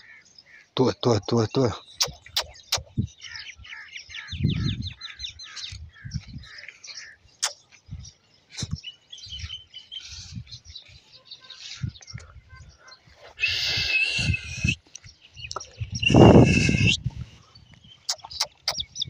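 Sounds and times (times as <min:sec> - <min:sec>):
small birds chirping: 0:00.0 - 0:19.0
sharp clicks: 0:02.0 - 0:02.9, 0:18.1 - 0:18.8.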